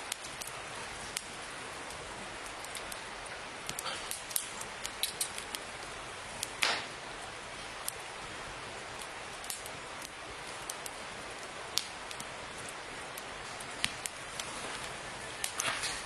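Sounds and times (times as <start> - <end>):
campfire crackling hiss: 0.0 - 16.0
wood popping and snapping: 3.6 - 5.6, 6.4 - 6.9.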